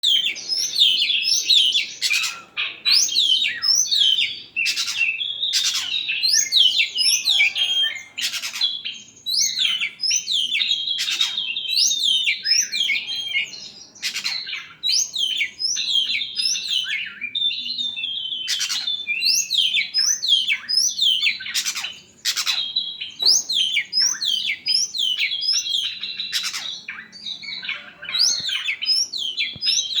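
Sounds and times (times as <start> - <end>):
bird singing whistles: 0.0 - 30.0.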